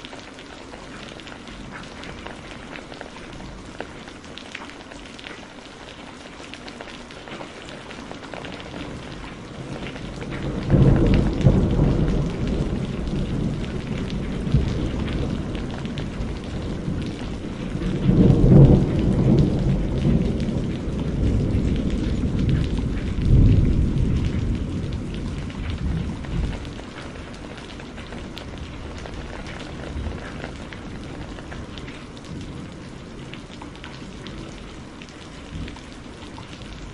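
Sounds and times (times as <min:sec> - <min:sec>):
steady rain: 0:00.0 - 0:36.9
thunder rolling: 0:08.8 - 0:33.3.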